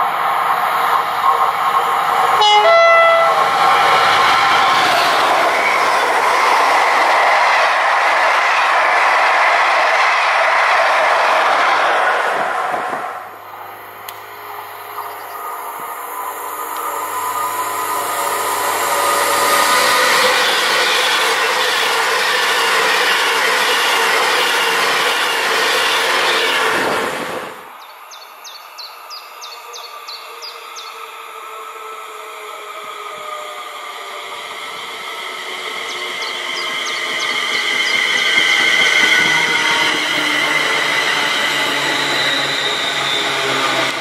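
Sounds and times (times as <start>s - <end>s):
distant train approaching: 0.0s - 44.0s
train passing at speed: 0.0s - 44.0s
birds chirping: 13.4s - 16.0s, 35.6s - 39.6s.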